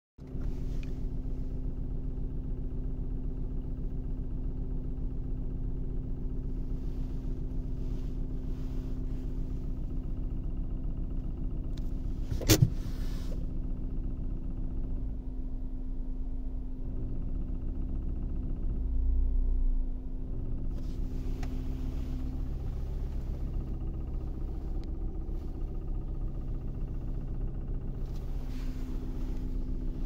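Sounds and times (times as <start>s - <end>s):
car engine running at low revs: 0.2s - 30.0s.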